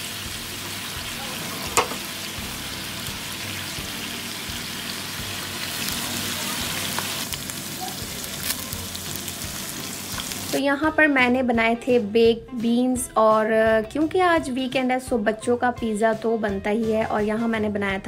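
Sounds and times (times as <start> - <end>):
food sizzling in grill pan: 0.0 - 10.6.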